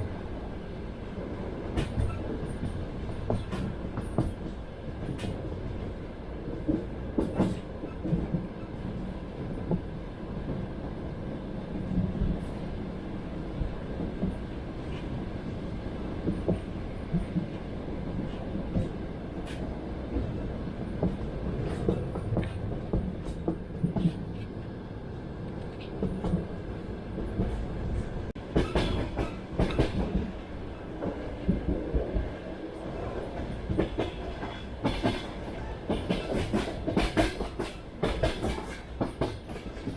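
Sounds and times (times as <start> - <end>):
train carriage rumbling: 0.0 - 39.9
wheels clacking over rail joints: 28.4 - 32.4, 33.0 - 39.9.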